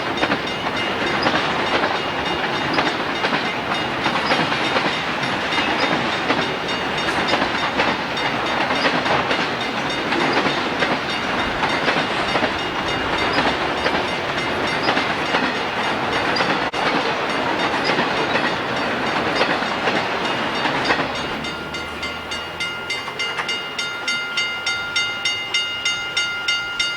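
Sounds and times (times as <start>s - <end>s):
freight train rattling past: 0.0s - 26.9s
bell ringing: 20.2s - 26.9s.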